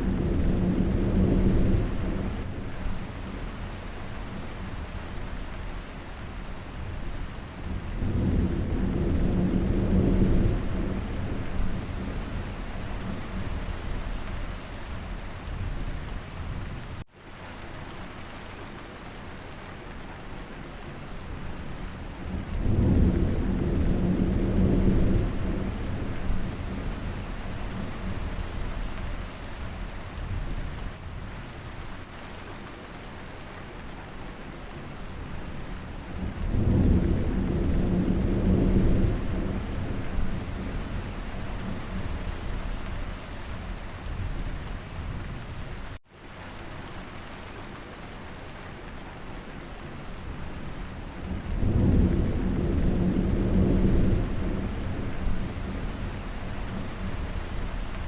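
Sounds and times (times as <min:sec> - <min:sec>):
low rolls of thunder: 0:00.0 - 0:04.7, 0:07.6 - 0:16.7, 0:22.2 - 0:30.8, 0:36.1 - 0:46.0, 0:51.1 - 0:58.0
steady rain: 0:00.0 - 0:58.0.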